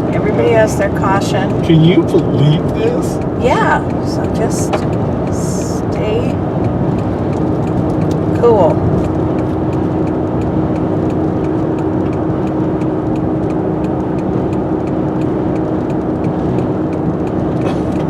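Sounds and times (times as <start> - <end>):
car engine hum: 0.0 - 18.0
light regular ticking: 0.0 - 18.0
road and wind rush: 0.0 - 18.0.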